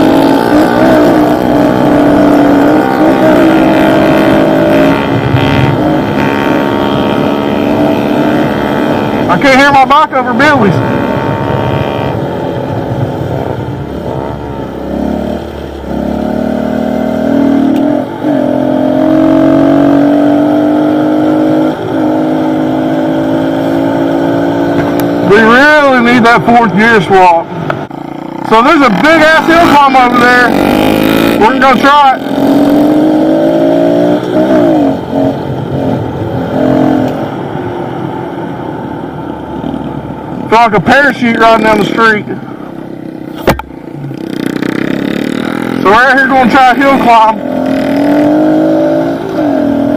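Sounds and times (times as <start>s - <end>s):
dirt bike engines revving: 0.0s - 37.6s, 39.5s - 49.9s
pit bike engine running: 27.6s - 36.0s.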